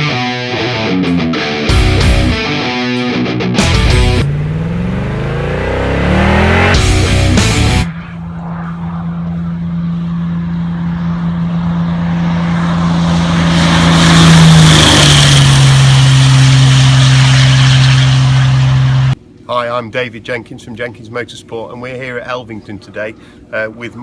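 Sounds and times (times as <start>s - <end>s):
racing truck engine: 3.5s - 19.2s.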